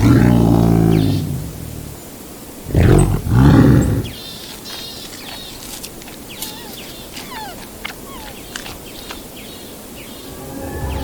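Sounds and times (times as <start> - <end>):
big cat roaring and grunting: 0.0 - 2.0, 2.6 - 4.2
small birds chirping: 0.0 - 11.0.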